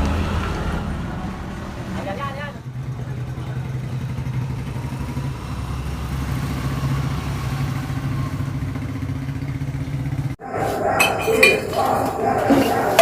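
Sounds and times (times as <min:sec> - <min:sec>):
raspy two-stroke engine idling: 0:02.7 - 0:10.4.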